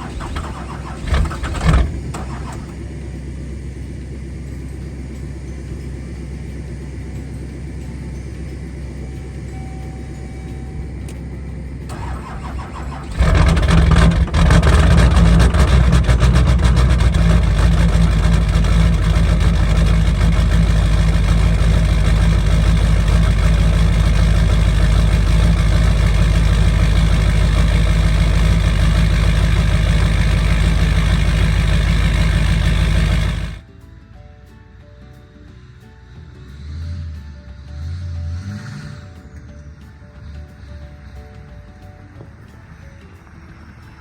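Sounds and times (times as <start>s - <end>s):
truck engine cranking and running: 0.0s - 33.7s.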